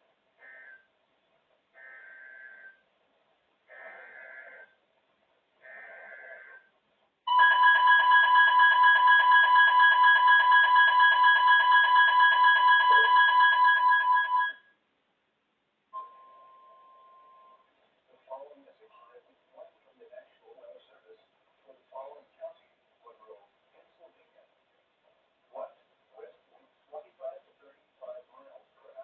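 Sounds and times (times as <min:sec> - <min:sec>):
loud steady alert tone: 0:07.3 - 0:14.7.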